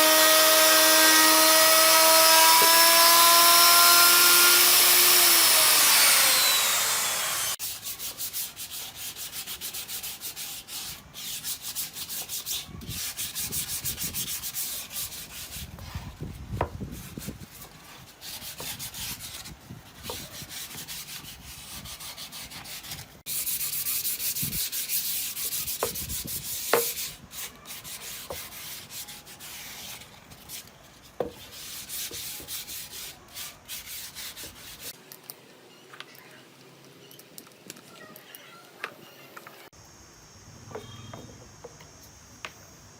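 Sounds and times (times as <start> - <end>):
hand sanding strokes: 0.0 - 35.0
power tool winding down: 1.3 - 7.6.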